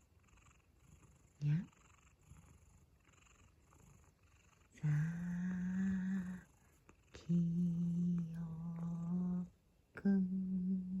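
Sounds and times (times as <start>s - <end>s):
person humming low notes: 4.8s - 6.4s.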